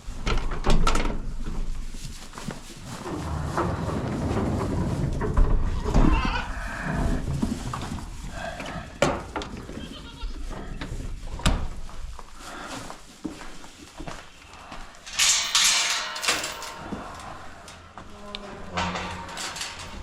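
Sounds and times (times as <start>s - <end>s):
rustling noise: 0.0s - 20.0s
goats and sheep bleating: 9.6s - 10.9s.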